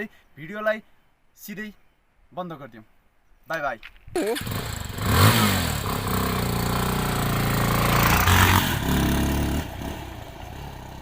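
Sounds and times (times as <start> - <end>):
motorcycle engine revving: 4.2 - 11.0.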